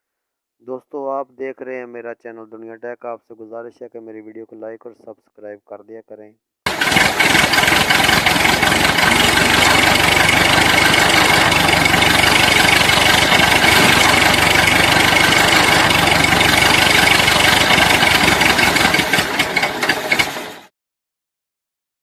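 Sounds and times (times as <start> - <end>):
tractor engine running: 6.7 - 20.7.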